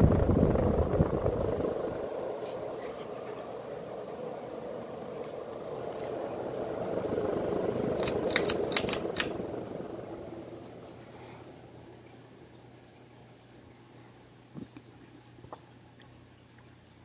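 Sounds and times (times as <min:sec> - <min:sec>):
ceiling fan running: 0:00.0 - 0:16.4
sharp clicks: 0:08.0 - 0:09.4.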